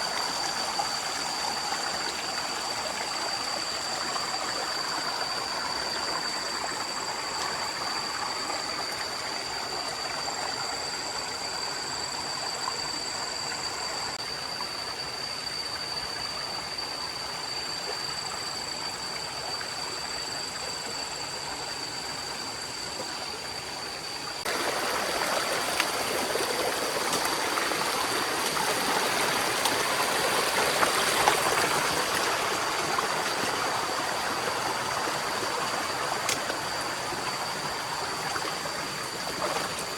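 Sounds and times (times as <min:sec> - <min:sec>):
stream water rushing: 0:00.0 - 0:13.8, 0:21.9 - 0:39.9
thin steady high tone: 0:00.0 - 0:39.9.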